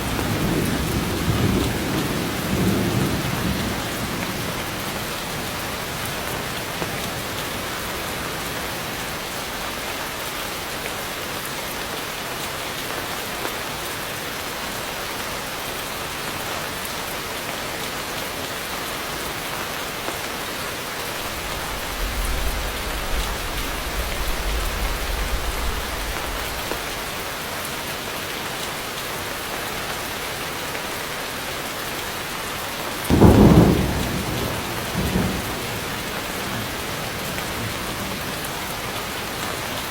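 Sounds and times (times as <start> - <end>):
heavy rain hissing: 0.0 - 39.9
thunder rumble: 21.1 - 27.4, 33.1 - 38.9
loud thunderclap: 21.2 - 27.2, 33.1 - 38.3.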